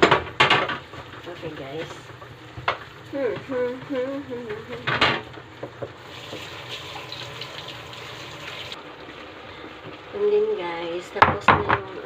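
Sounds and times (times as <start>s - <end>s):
water gushing: 0.8s - 9.6s.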